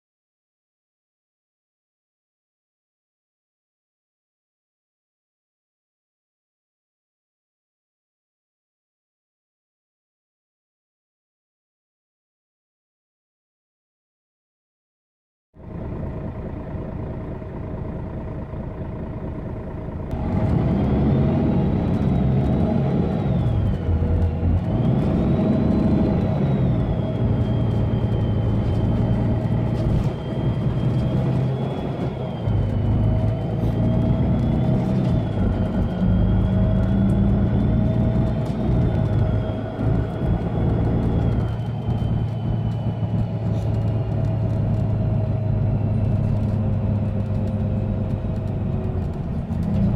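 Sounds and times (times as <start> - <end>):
bus diesel engine: 15.6 - 49.9.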